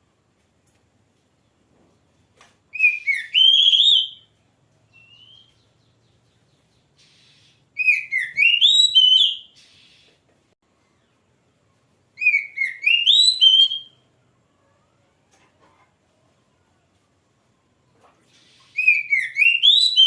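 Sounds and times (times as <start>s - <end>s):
bird singing whistled notes: 2.7s - 10.1s, 12.2s - 14.1s, 18.5s - 20.0s.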